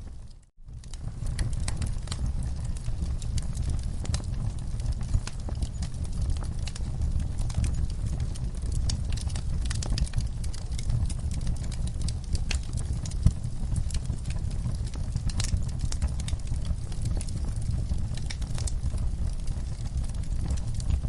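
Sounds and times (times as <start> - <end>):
fireplace wood crackling and popping: 0.0 - 21.0
low rumble of flames: 0.0 - 21.0.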